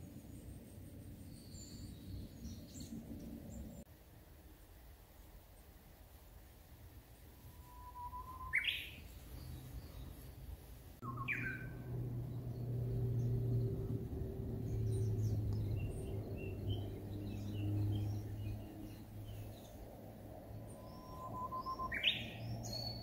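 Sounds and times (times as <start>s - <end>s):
faint bird chirps: 7.4s - 10.4s, 11.0s - 14.0s, 20.5s - 23.0s
shrill bird call: 7.5s - 9.1s, 11.0s - 11.9s, 20.7s - 23.0s
upward-sweeping whistled bird call: 7.5s - 10.0s, 11.0s - 11.9s, 20.5s - 23.0s
low steady hum: 9.0s - 23.0s.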